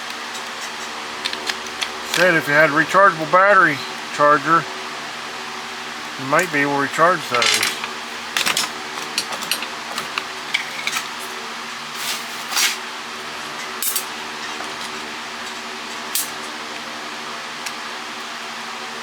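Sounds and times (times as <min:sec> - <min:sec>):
steady low hum: 0:00.4 - 0:11.2.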